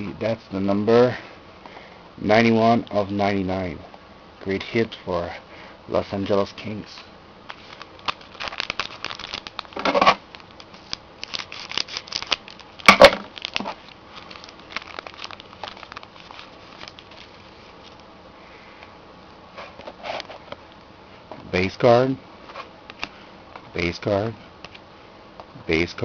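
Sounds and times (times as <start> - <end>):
card pack wrapper crinkling: 7.5 - 18.1
cards handled: 7.5 - 18.1.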